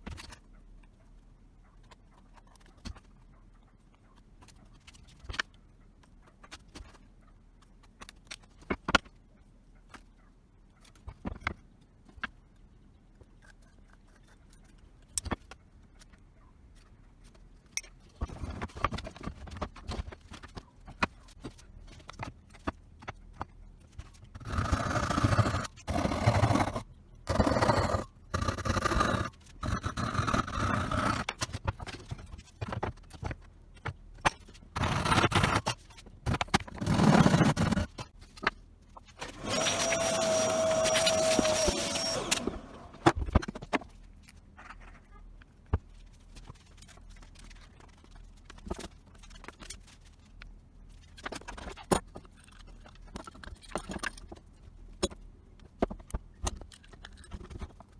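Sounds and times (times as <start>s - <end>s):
hand tool scraping: 24.4s - 31.4s, 34.8s - 38.0s, 39.2s - 43.2s.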